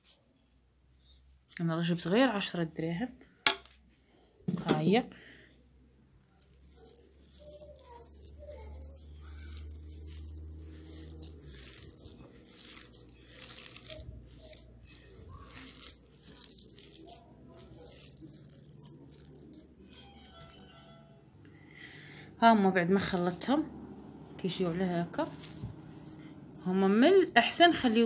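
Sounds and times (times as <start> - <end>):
faint crackling and rustling: 0.0 - 21.2, 22.4 - 28.0
hands kneading sticky paste: 4.7 - 21.2, 22.3 - 28.0.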